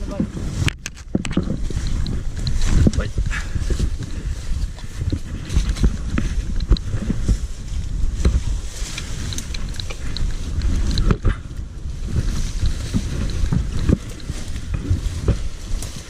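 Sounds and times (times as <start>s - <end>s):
wind buffeting microphone: 0.0s - 16.0s
small clicks and knocks: 0.6s - 3.0s, 4.8s - 7.1s.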